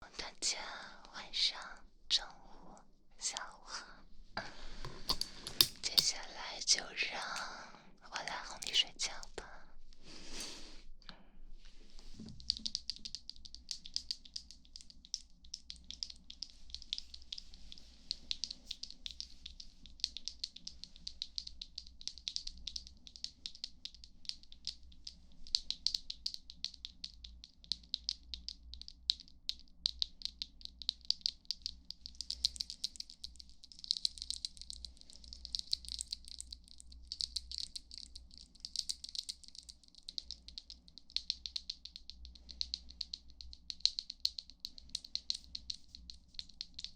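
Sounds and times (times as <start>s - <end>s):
crisp crackle of small clicks: 4.8s - 7.6s, 11.1s - 46.9s.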